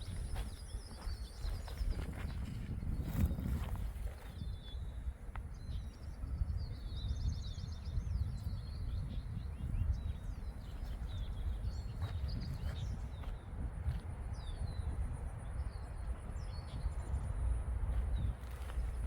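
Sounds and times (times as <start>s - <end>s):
songbirds chirping and singing: 0.0s - 13.5s
steady low rumble: 0.0s - 19.0s.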